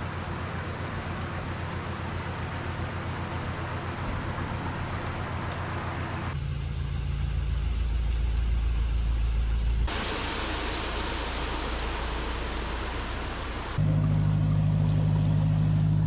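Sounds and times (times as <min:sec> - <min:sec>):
diesel boat engine ticking over: 0:00.0 - 0:16.0
rushing water hiss: 0:06.4 - 0:16.0.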